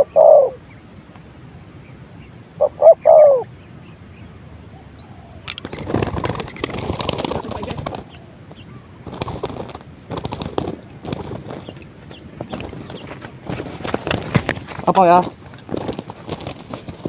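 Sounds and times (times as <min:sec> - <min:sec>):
dove cooing: 0:00.0 - 0:00.8, 0:02.6 - 0:03.6, 0:04.7 - 0:17.0
wings flapping: 0:05.4 - 0:17.0.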